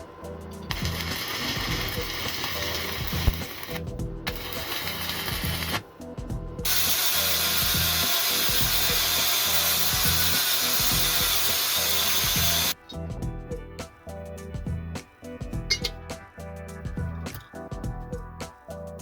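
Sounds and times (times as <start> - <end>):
faint background music: 0.0 - 19.0
power tool hissing rasp: 0.7 - 5.8, 6.7 - 12.8.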